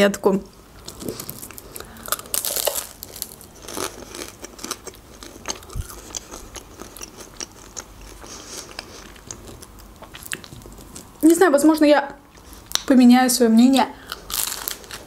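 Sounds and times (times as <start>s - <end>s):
crunchy chewing: 0.8s - 11.1s, 14.0s - 15.0s.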